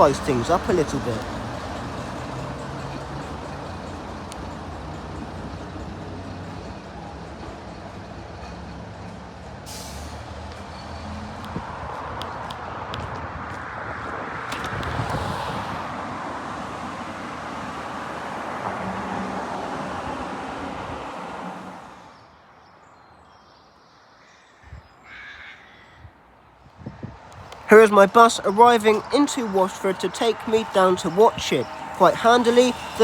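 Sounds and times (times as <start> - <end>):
heavy vehicle passing: 27.5 - 33.0.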